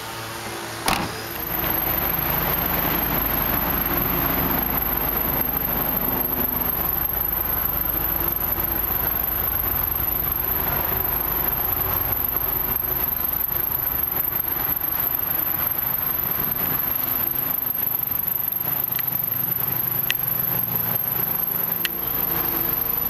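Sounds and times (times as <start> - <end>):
running noise with low hum: 0.0 - 23.0
thin high whine: 0.0 - 23.0
car trunk lid shutting: 0.8 - 1.4.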